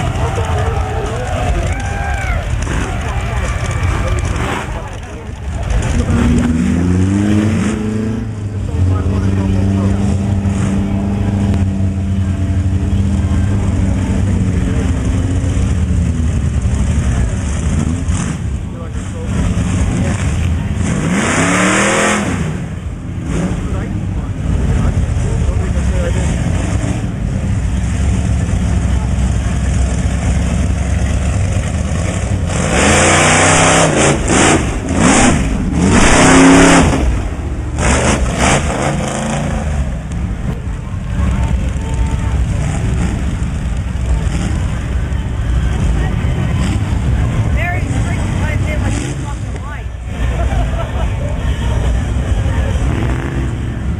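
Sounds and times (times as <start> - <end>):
constant wash of noise: 0.0 - 53.9
truck engine running: 0.0 - 53.9
loud rushing noise: 13.4 - 53.9.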